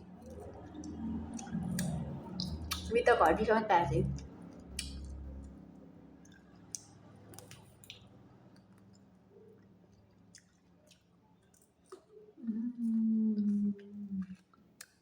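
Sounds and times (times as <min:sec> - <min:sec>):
soft chewing: 0:00.0 - 0:03.4, 0:06.2 - 0:15.0
sharp mouth clicks: 0:00.8 - 0:02.9, 0:04.7 - 0:05.2.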